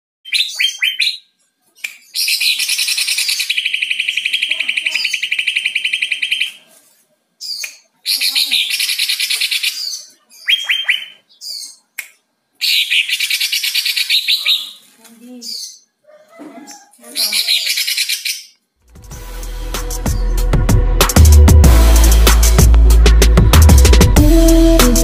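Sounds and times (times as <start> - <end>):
bird singing chirps and trills: 0.2 - 6.6, 7.4 - 11.8, 12.6 - 16.0, 16.6 - 18.6.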